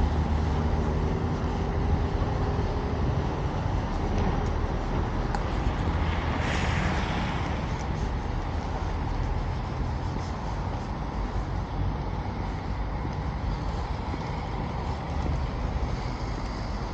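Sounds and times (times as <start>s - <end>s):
traffic rumble: 0.0s - 16.9s
vehicle passing with tyre hiss: 0.0s - 16.9s.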